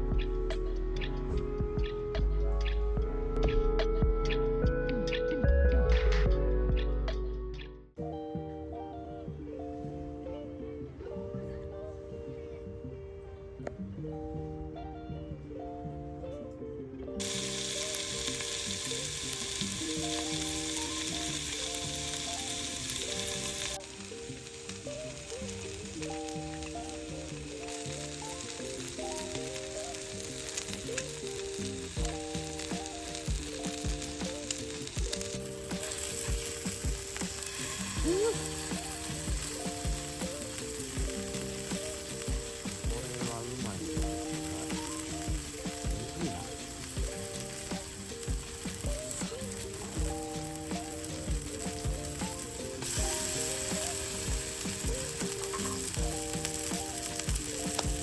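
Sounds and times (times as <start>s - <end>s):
background music with steady beat: 0.0s - 58.0s
food sizzling in a frying pan: 17.2s - 58.0s.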